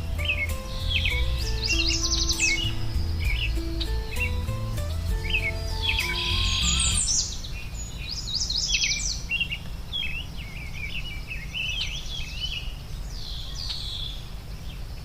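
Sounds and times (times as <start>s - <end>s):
soft music with sustained notes: 0.0s - 7.3s
birds chirping and singing: 0.0s - 14.2s.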